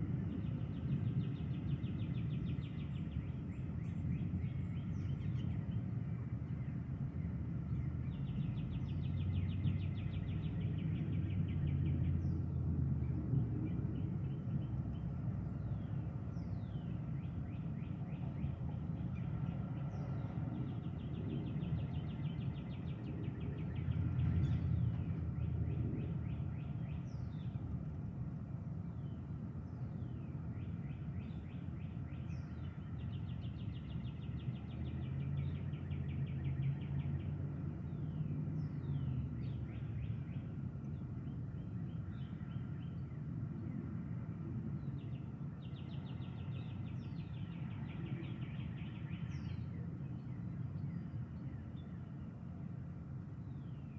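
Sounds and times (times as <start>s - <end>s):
steady low rumble: 0.0s - 53.8s
birds calling and trilling: 44.8s - 52.2s.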